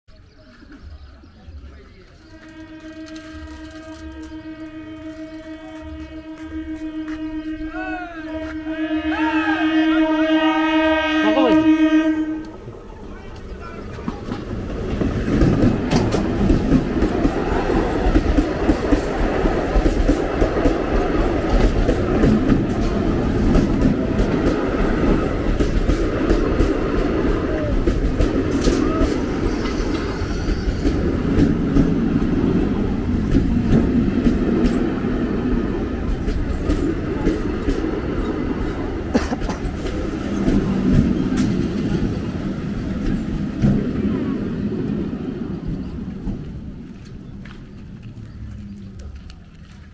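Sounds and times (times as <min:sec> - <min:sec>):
train rumbling on rails: 0:00.1 - 0:49.9
wheels clicking over rail joints: 0:12.4 - 0:32.4, 0:36.0 - 0:44.0.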